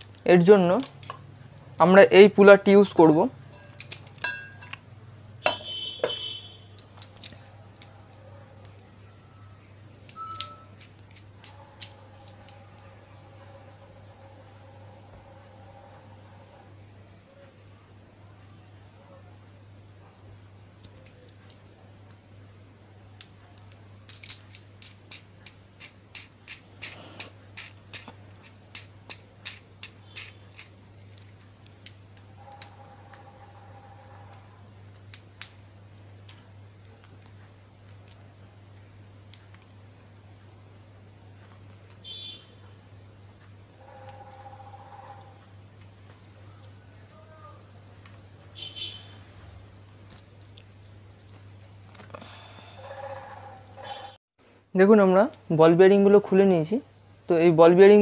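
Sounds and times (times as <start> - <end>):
metal clicks and clinks: 0.8 - 1.2, 3.5 - 4.8, 6.7 - 8.0, 10.0 - 12.9, 23.2 - 33.4.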